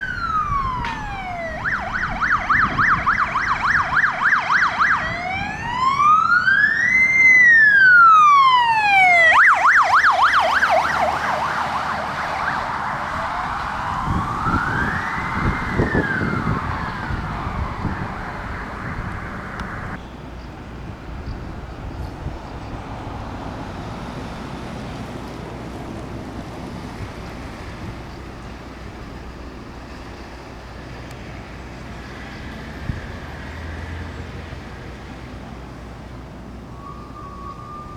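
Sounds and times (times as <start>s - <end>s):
siren wail: 0.0s - 20.0s, 36.5s - 37.9s
siren yelp: 0.0s - 20.0s, 36.6s - 37.9s
road traffic noise: 0.0s - 37.9s.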